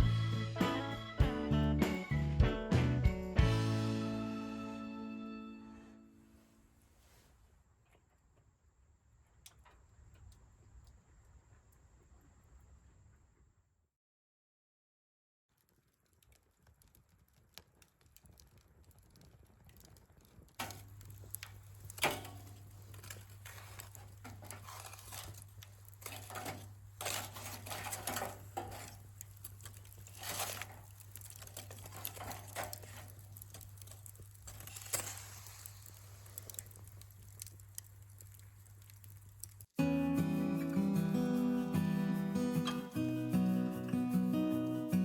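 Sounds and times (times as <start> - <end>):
packaging rustling and crinkling: 15.7 - 39.7.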